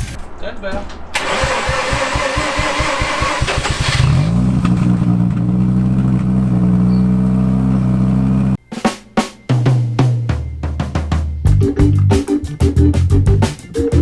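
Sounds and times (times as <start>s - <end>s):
engine starter cranking: 1.2s - 8.2s
engine idling: 1.2s - 8.6s.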